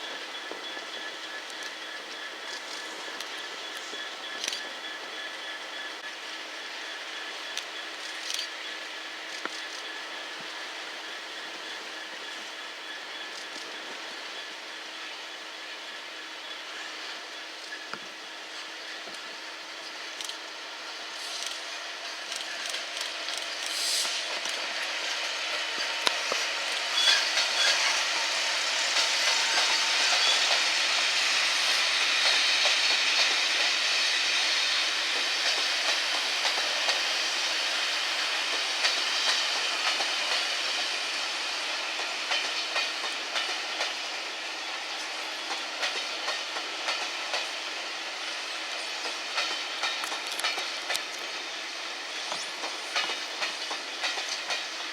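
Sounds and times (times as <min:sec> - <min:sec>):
train rolling past: 0:00.0 - 0:54.9
wheels clicking over rail joints: 0:21.3 - 0:27.8, 0:49.0 - 0:51.4, 0:52.3 - 0:54.9.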